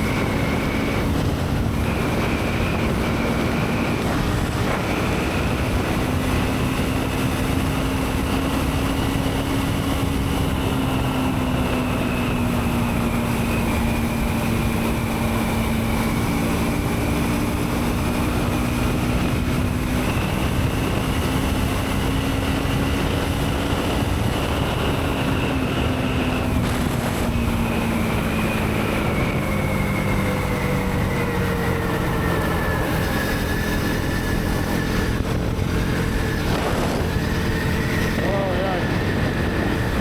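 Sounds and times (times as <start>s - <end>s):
motorcycle engine at speed: 0.0s - 40.0s
rush of noise: 19.3s - 40.0s.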